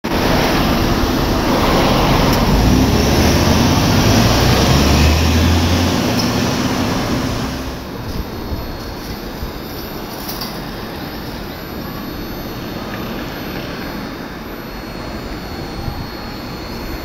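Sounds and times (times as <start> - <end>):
electric trains rushing: 0.0 - 17.0
low hum: 0.1 - 8.8.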